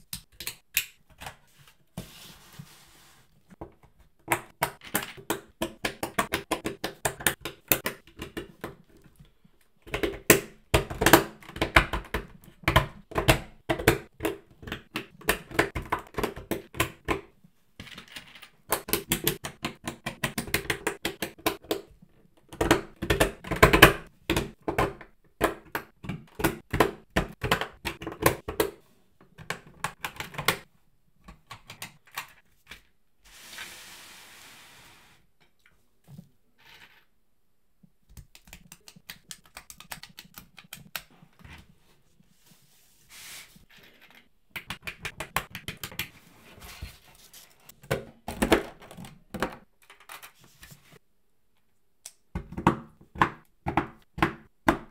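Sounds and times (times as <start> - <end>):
plastic parts clicking and clattering: 17.8 - 33.0, 47.7 - 50.4.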